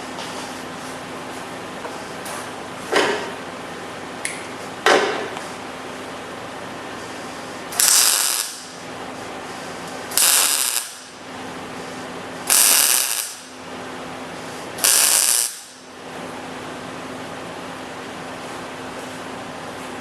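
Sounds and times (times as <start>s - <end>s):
steady background hum: 0.0s - 20.0s
welding arc crackling: 7.7s - 9.0s, 9.8s - 11.2s, 12.4s - 13.6s, 14.8s - 15.9s.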